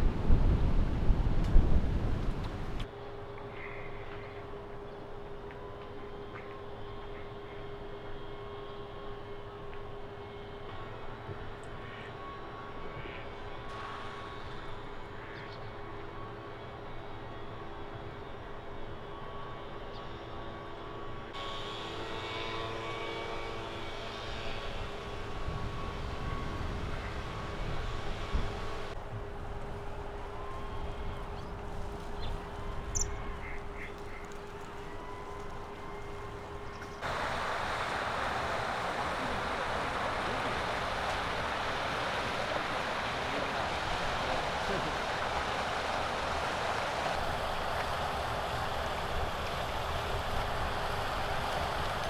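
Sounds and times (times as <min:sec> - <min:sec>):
car road and wind noise: 0:00.0 - 0:02.9, 0:37.0 - 0:52.0
engine drone: 0:00.0 - 0:17.0, 0:21.3 - 0:52.0
high hiss: 0:37.0 - 0:52.0.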